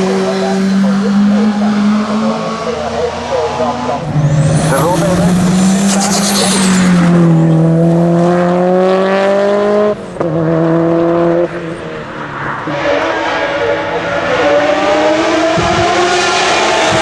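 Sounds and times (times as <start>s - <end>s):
race car engine at full throttle: 0.0s - 17.0s
engine upshift: 4.0s - 8.5s.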